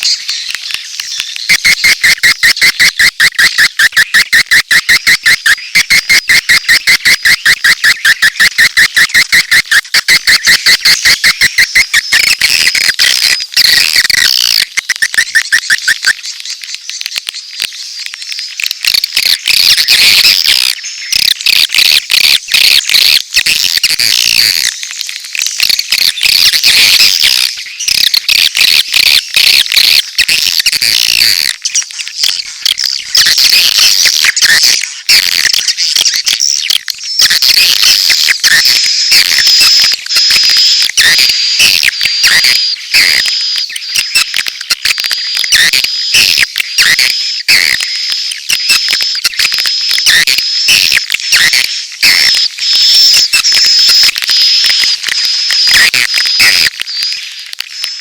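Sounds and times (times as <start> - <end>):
swiftlet calls chattering: 0.0 - 58.0.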